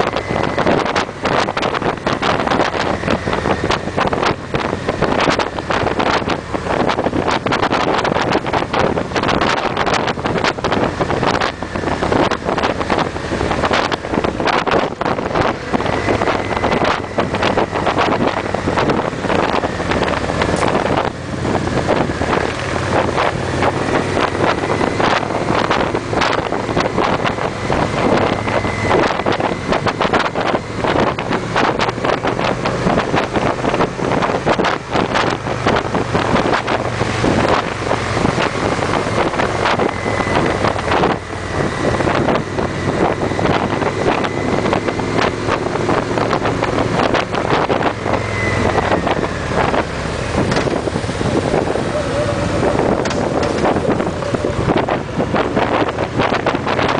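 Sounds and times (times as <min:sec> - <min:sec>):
motorcycles cruising: 0:00.0 - 0:56.9
wind buffeting microphone: 0:00.0 - 0:56.9.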